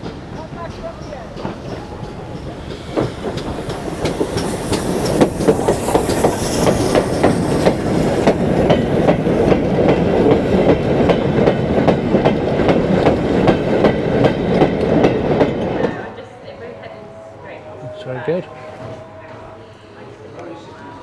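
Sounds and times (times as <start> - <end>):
train wheels clicking over rail joints: 0.0 - 16.0.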